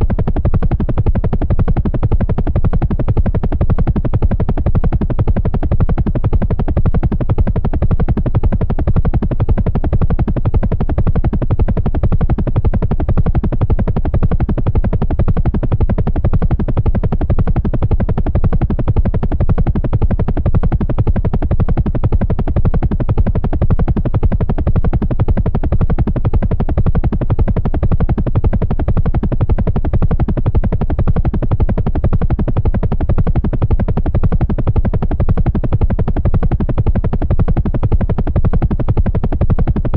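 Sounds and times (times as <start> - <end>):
helicopter rotor chopping: 0.1 - 39.9.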